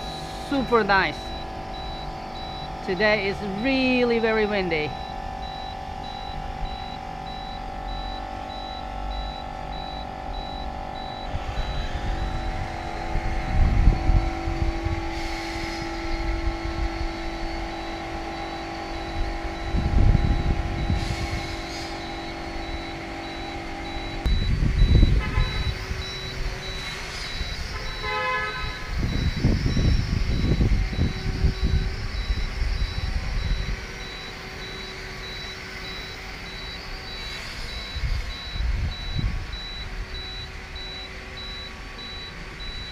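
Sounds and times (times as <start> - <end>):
drone propellers whining: 0.0 - 42.9
wind rumbling on microphone: 9.1 - 28.0, 28.6 - 35.0, 36.6 - 42.9.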